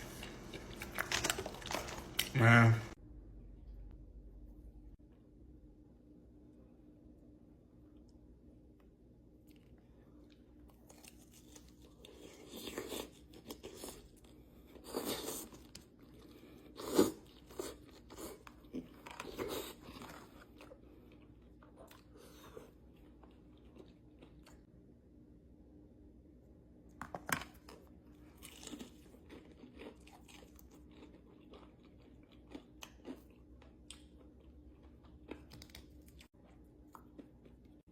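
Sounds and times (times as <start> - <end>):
person chewing crunchy food: 0.0 - 3.0, 9.4 - 24.7, 27.6 - 37.9.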